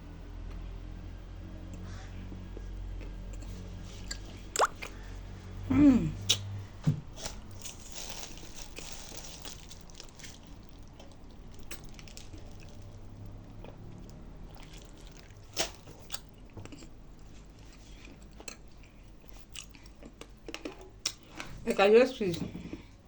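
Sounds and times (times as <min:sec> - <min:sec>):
low steady hum: 0:00.0 - 0:23.0
chewing crunchy clay: 0:07.6 - 0:21.2.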